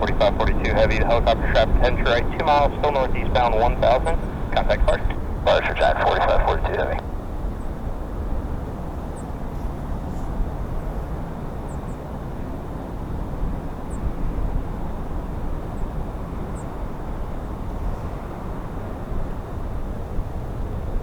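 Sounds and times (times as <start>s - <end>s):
jet engines rumbling: 0.0s - 7.0s.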